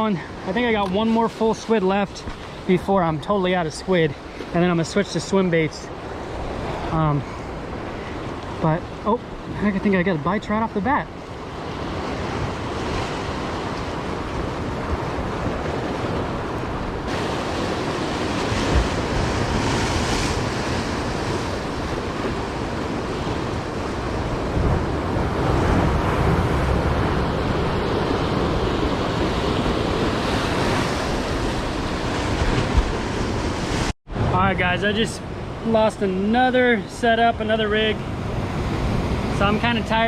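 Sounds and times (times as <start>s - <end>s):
ocean surf washing against rocks: 0.0s - 40.0s
wind buffeting microphone: 11.2s - 35.6s.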